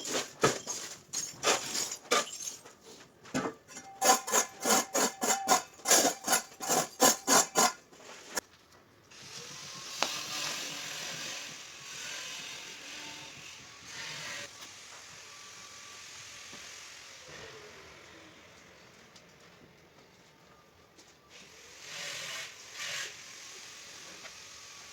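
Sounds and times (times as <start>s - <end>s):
scrubbing on tile: 3.7s - 8.4s.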